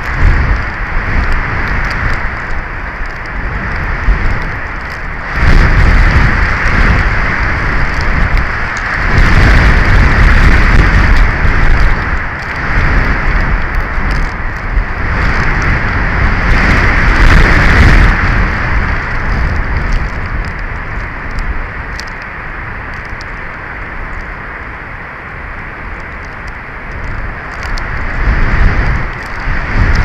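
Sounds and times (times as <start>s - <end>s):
strong wind on microphone: 0.0s - 30.0s
faint ticks: 19.5s - 22.3s, 25.9s - 30.0s.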